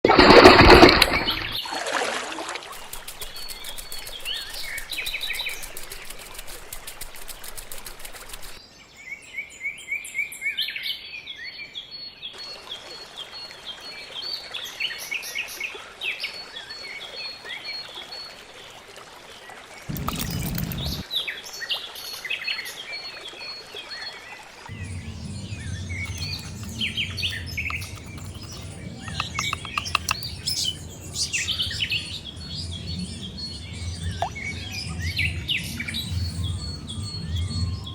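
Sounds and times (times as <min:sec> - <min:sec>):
burst of low noise: 0:19.9 - 0:21.0, 0:24.7 - 0:37.9
small birds chirping: 0:24.7 - 0:37.9.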